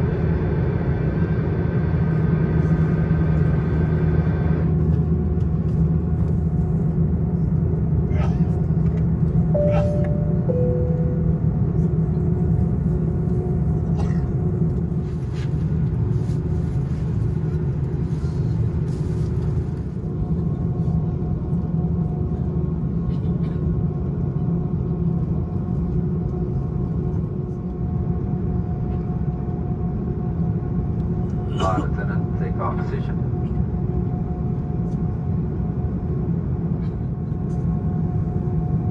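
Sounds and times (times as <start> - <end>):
aircraft cabin rumble: 0.0 - 38.9
faint steady hum: 9.5 - 13.5.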